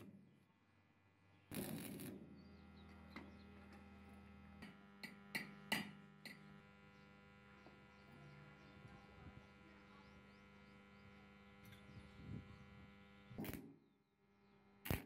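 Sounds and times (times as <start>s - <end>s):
arc welder mains hum: 0.0s - 15.0s
welding arc crackling: 1.5s - 7.9s, 10.8s - 13.8s.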